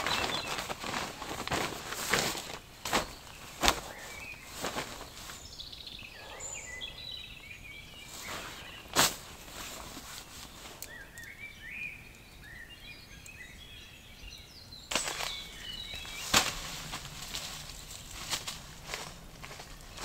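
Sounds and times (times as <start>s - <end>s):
sudden crunch: 0.0s - 5.5s, 8.1s - 10.5s, 14.9s - 20.0s
small birds chirping: 0.0s - 20.0s.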